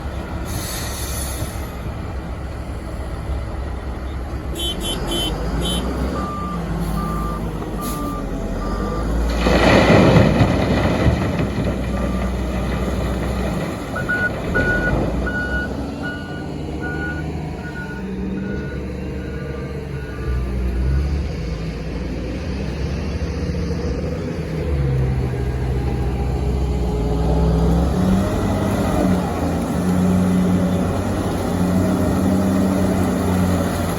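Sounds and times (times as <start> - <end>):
reversing alarms beeping: 4.6 - 9.2, 14.0 - 21.1
heavy diesel engine drone: 10.6 - 33.9.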